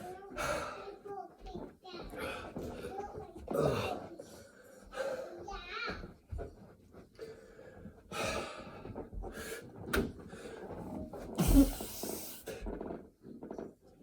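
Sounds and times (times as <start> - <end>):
man breathing hard: 7.2 - 10.7, 11.4 - 12.6.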